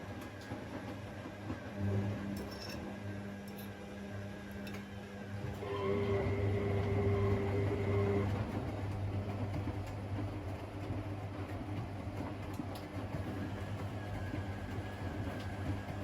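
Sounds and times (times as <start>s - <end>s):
washing machine running: 0.0s - 16.0s.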